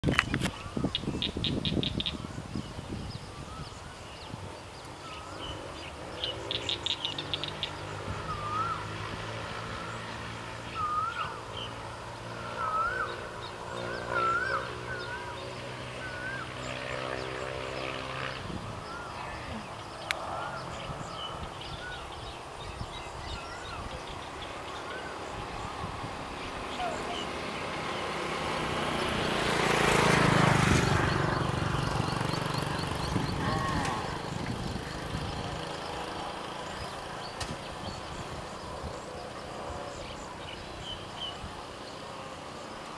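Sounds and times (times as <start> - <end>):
steady engine hum: 0.0 - 42.9
bird whistling: 6.5 - 8.9, 10.7 - 11.4, 12.6 - 13.3.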